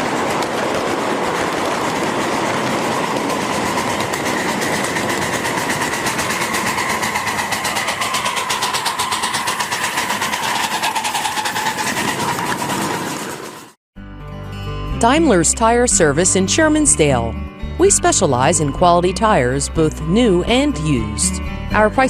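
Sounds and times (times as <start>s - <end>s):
vehicle running with whine: 0.0s - 13.8s.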